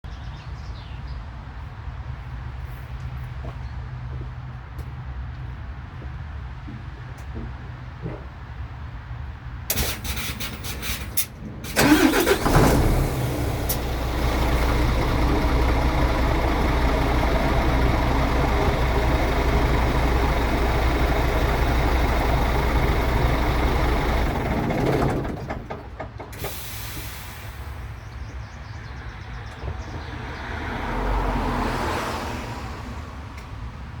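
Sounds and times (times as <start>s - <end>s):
truck diesel engine idling: 9.7s - 28.0s
short hiss: 26.4s - 27.9s.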